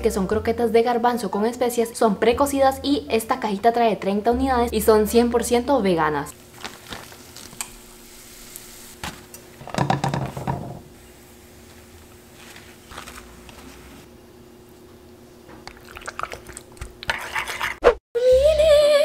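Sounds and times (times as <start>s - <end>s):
food sizzling in oil: 7.2s - 9.0s.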